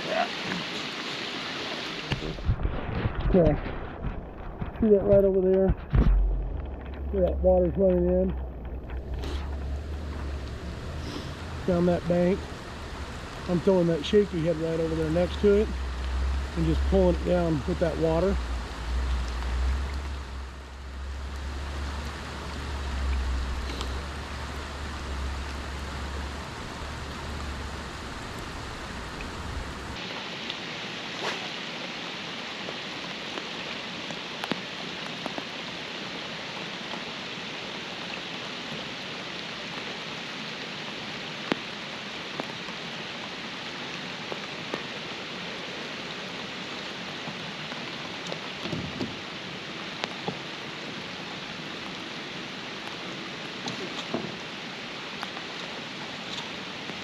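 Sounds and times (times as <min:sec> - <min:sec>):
raindrops ticking close by: 0:00.0 - 0:57.0
steady rain falling: 0:00.0 - 0:57.0
low rumble: 0:02.1 - 0:30.0.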